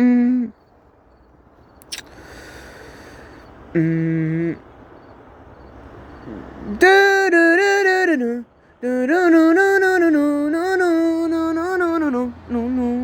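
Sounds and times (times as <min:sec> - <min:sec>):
high voice singing wordless melody: 0:00.0 - 0:00.6, 0:03.1 - 0:04.7, 0:06.2 - 0:13.0.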